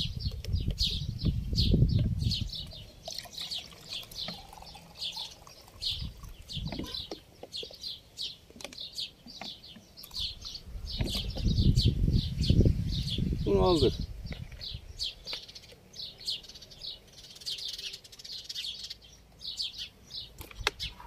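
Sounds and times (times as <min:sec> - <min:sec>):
bird chirping: 0:00.0 - 0:21.0
liquid pouring into plastic cup: 0:02.6 - 0:07.2.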